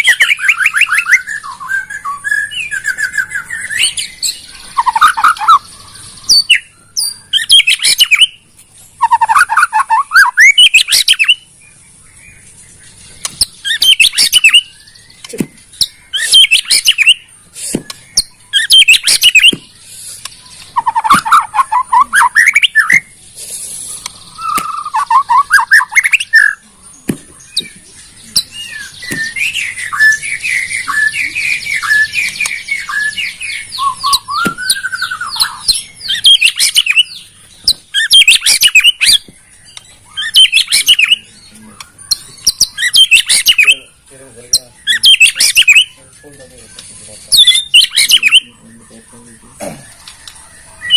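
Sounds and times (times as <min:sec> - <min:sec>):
bird call bursts: 0:00.0 - 0:08.4, 0:16.1 - 0:26.6, 0:28.8 - 0:37.2
bird singing whistled phrases: 0:00.0 - 0:08.4, 0:09.0 - 0:11.5, 0:13.2 - 0:49.2.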